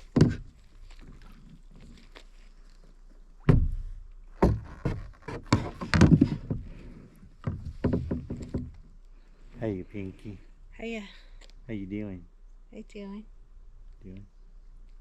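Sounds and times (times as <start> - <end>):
paddle knocking kayak hull: 0.0 - 1.4, 3.4 - 8.9.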